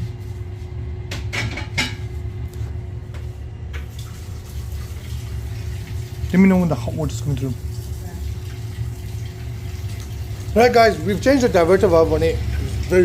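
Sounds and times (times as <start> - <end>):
boiler humming: 0.0 - 13.0
tap water running: 3.7 - 13.0.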